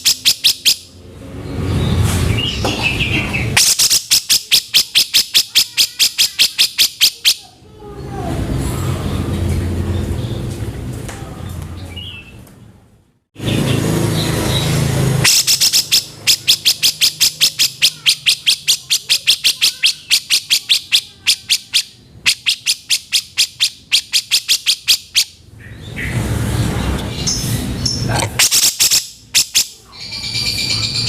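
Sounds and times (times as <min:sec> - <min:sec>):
bird giving harsh call: 0:00.0 - 0:01.0, 0:03.4 - 0:07.5, 0:14.6 - 0:25.4, 0:28.0 - 0:31.0.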